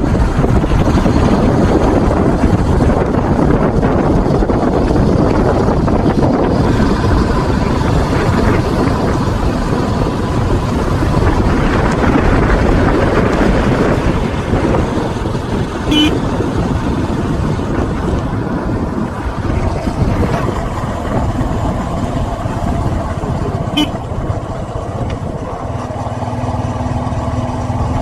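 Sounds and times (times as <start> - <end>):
wind noise on microphone: 0.0 - 28.0.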